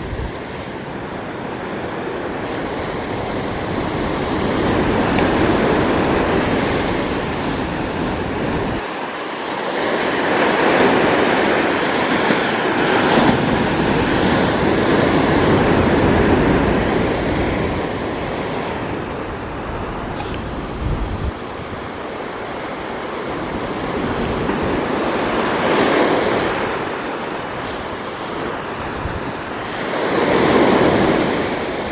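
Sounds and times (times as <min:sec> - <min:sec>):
ocean surf: 0:00.0 - 0:31.9
wind: 0:00.0 - 0:31.9.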